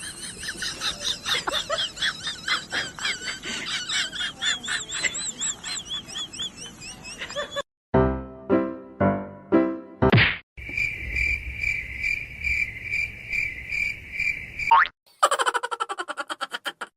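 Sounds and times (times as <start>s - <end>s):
small birds chirping: 4.4s - 7.6s.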